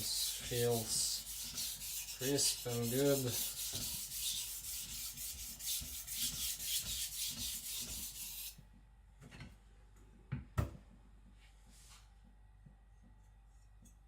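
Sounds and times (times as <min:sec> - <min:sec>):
knife scraping on whetstone: 0:00.0 - 0:08.4.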